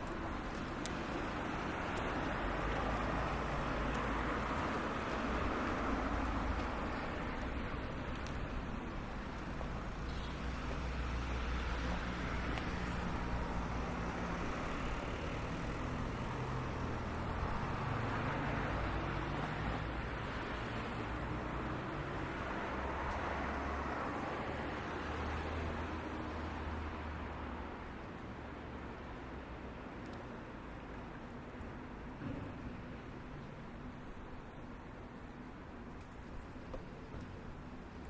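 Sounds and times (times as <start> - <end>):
road traffic engine rumble: 0.0 - 24.2.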